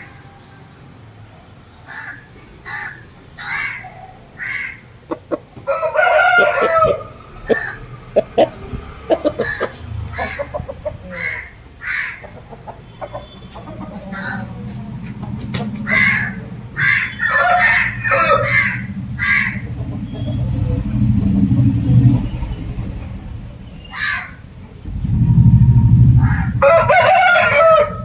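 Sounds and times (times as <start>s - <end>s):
rooster crowing: 5.6s - 8.3s, 15.9s - 19.6s, 26.2s - 28.0s.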